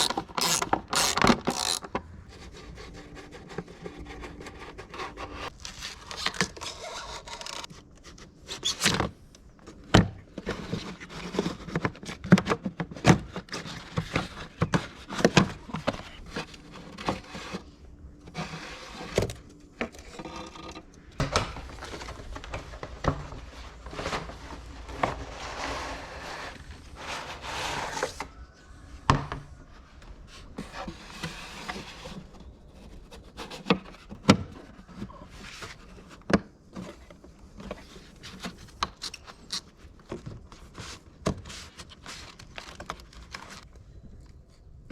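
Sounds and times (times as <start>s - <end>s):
scraping and rubbing: 0.0s - 8.9s, 12.9s - 28.5s.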